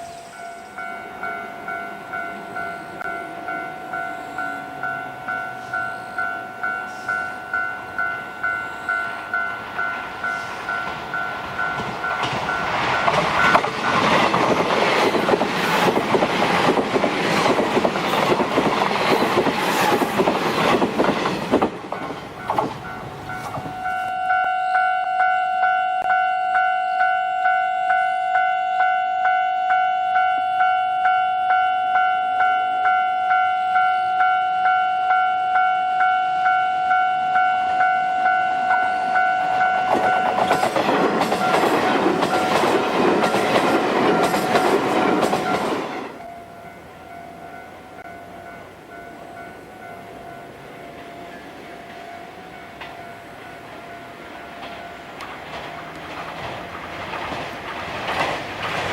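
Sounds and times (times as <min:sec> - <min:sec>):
level crossing warning bell: 0:00.0 - 0:15.9, 0:21.2 - 0:56.1
train wheels clattering on rails: 0:09.8 - 0:23.8, 0:39.5 - 0:46.2, 0:50.9 - 0:58.9.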